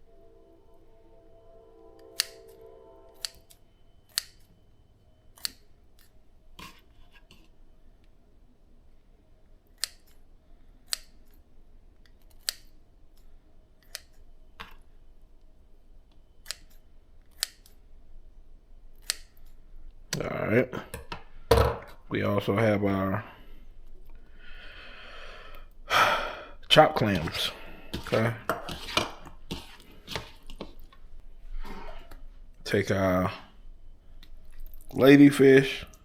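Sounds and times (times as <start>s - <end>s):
scissors snipping shrimp: 12.2s - 12.7s.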